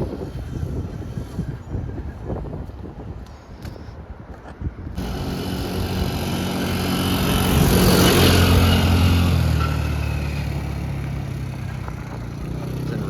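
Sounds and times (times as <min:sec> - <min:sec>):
atv engine running: 0:05.0 - 0:13.0.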